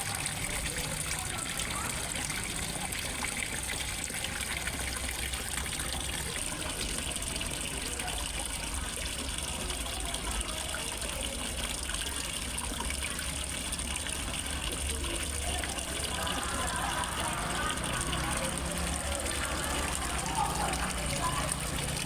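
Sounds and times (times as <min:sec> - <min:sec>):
waterfall splashing into pond: 0:00.0 - 0:22.0.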